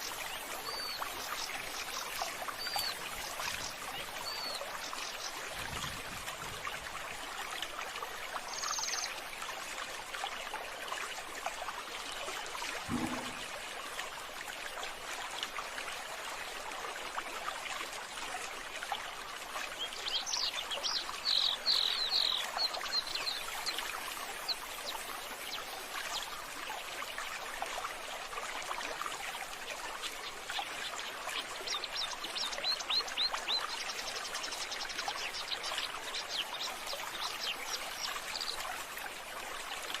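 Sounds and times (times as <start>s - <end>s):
water trickling: 0.0s - 40.0s
low thump: 12.9s - 13.5s.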